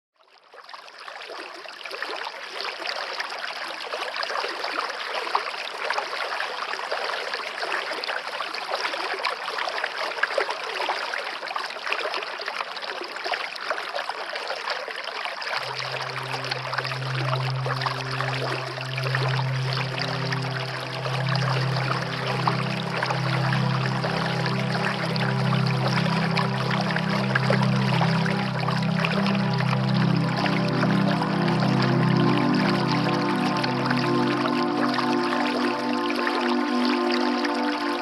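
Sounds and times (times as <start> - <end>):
stream running: 0.3 - 38.0
low sustained music tone: 15.6 - 38.0.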